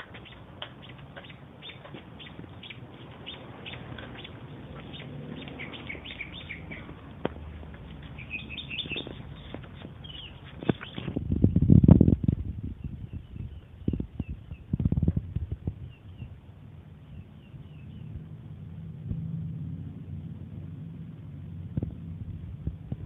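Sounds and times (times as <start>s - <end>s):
small birds chirping: 0.0s - 11.7s, 12.4s - 18.3s.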